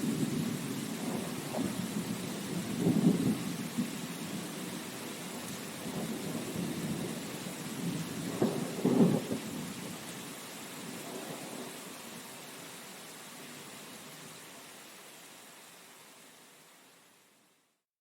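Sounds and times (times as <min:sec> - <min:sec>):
steady rain: 0:00.0 - 0:17.9.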